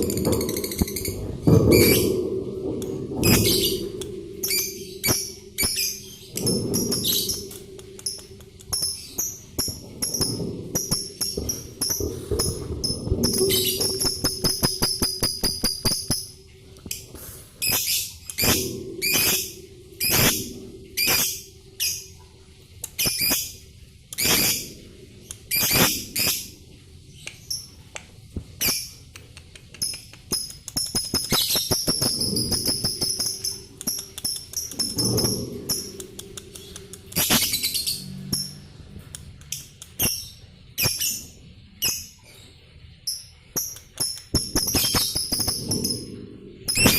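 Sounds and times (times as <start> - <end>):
high-pitched bird chirps: 39.5 - 42.2, 43.0 - 46.1.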